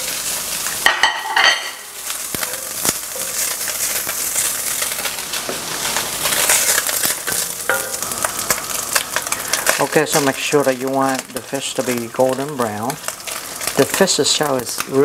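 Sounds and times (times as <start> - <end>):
fish and garlic sizzling in oil: 0.0 - 15.0
wooden spoon scraping a pan: 1.2 - 10.4.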